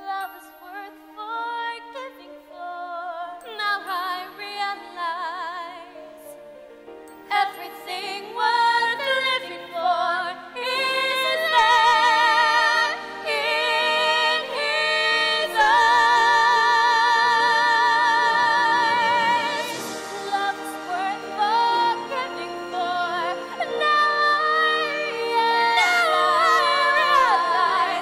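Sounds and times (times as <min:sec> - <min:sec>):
women singing a slow ballad: 0:07.3 - 0:28.0
backing accompaniment: 0:11.0 - 0:28.0.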